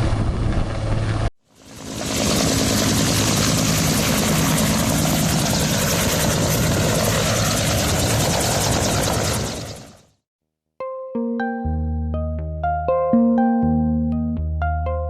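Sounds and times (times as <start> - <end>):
helicopter rotor chop: 0.0 - 10.2.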